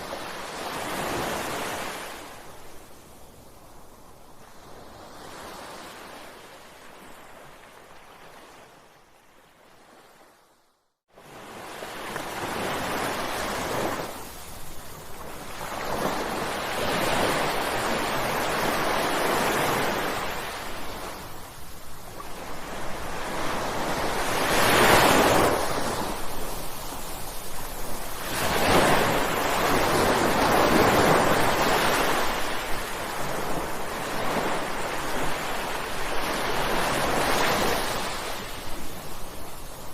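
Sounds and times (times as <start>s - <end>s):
ocean waves breaking: 0.0s - 2.8s, 11.2s - 39.9s.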